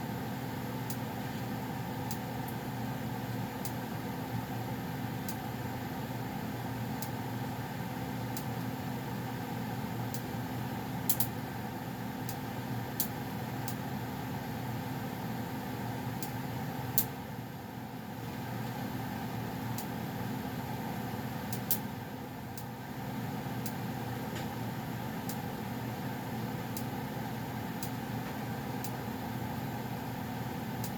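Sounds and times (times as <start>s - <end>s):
furnace blower humming: 0.0s - 30.9s.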